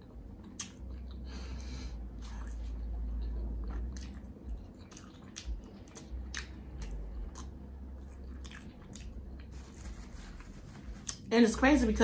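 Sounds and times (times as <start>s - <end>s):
person chewing burger: 0.0s - 11.3s.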